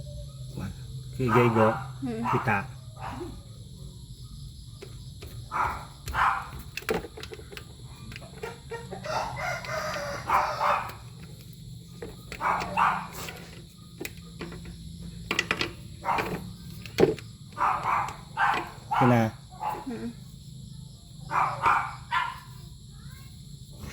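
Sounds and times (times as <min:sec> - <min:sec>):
rooster crowing: 0:08.4 - 0:11.2.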